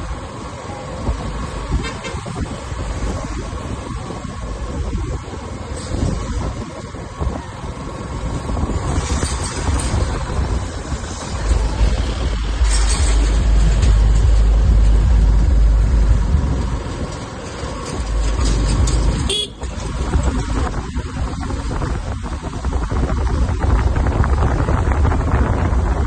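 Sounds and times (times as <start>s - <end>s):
road traffic rumble: 0.0s - 26.0s
vehicle horns tooting: 1.7s - 2.4s, 19.2s - 19.8s.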